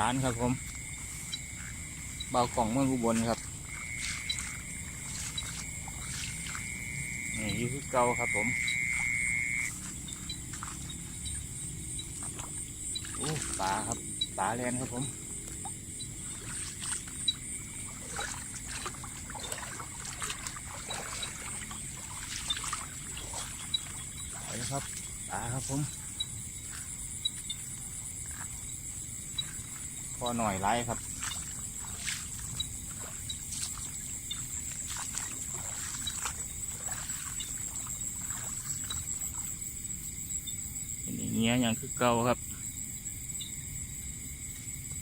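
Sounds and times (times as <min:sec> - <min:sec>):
water splashing and trickling: 0:00.0 - 0:42.4
high-pitched insect drone: 0:00.0 - 0:45.0
fish thrashing at surface: 0:12.1 - 0:13.9, 0:16.2 - 0:25.2, 0:31.0 - 0:39.5.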